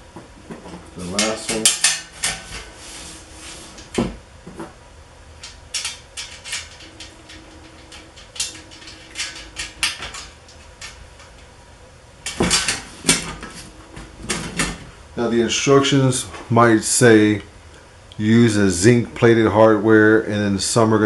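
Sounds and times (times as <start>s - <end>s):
bolts and nuts clinking: 5.4s - 11.4s.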